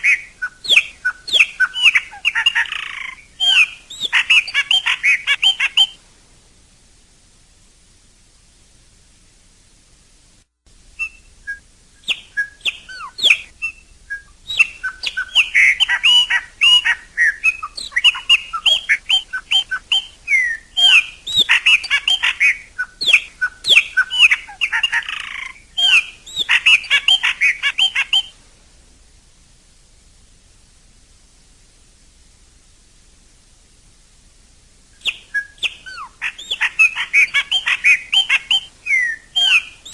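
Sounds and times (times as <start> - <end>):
blackbird singing: 0.0 - 6.0, 11.0 - 28.4, 35.0 - 39.9.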